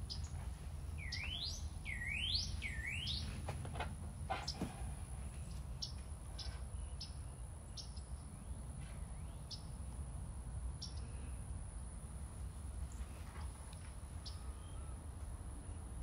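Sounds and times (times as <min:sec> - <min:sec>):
small birds chirping: 0:00.0 - 0:10.1, 0:10.7 - 0:11.5.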